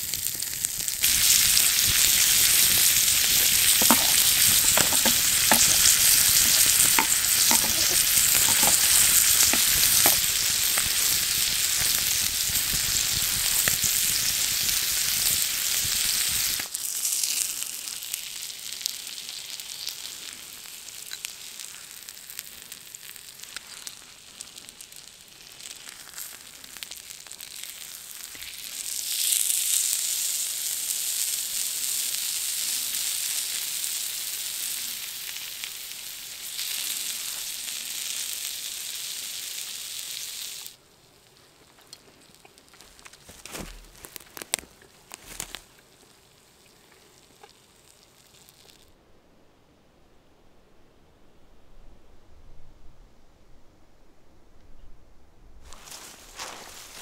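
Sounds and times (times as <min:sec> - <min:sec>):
food sizzling in a pan: 0:00.0 - 0:43.0, 0:45.2 - 0:49.0, 0:55.7 - 0:57.0
oil pops: 0:02.6 - 0:10.9.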